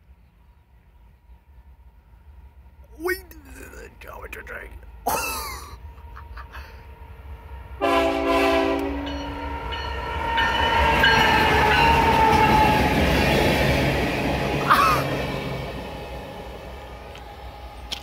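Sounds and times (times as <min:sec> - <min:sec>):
train rumbling past: 0:00.0 - 0:18.0
locomotive horn blast: 0:07.8 - 0:09.4.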